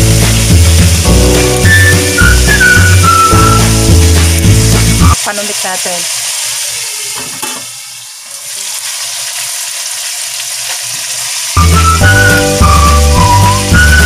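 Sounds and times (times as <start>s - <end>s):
music with whistled melody: 0.0s - 5.2s, 11.4s - 14.0s
meat sizzling in oil: 0.0s - 14.0s.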